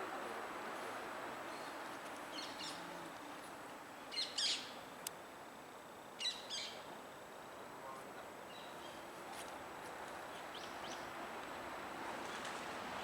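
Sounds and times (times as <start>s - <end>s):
bird chirping: 4.1s - 4.8s.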